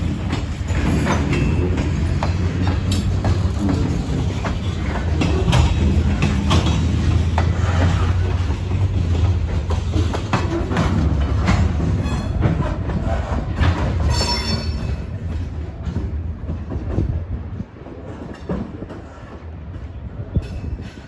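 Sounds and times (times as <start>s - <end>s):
wheels clicking over rail joints: 0.0s - 17.1s
freight train rumbling: 0.0s - 21.0s
high wheel squeal: 14.1s - 15.0s.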